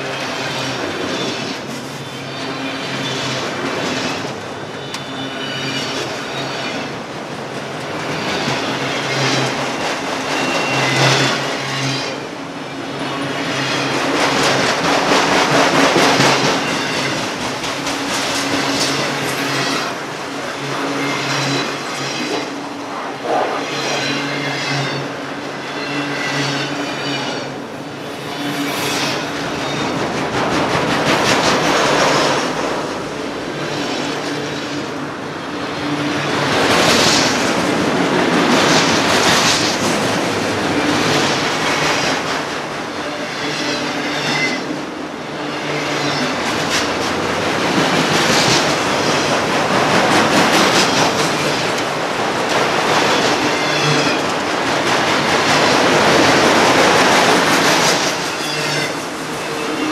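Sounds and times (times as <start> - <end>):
steel wheels clattering on rail: 0.0 - 59.9
high-pitched wheel squeals: 4.8 - 6.9, 18.3 - 30.1, 57.8 - 59.9.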